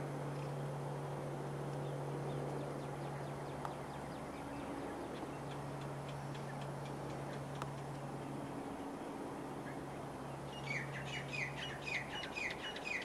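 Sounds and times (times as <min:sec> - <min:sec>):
steady low hum: 0:00.0 - 0:13.0
faint sharp clicks: 0:03.6 - 0:03.8, 0:05.5 - 0:08.0
small bird chirping: 0:10.5 - 0:13.0.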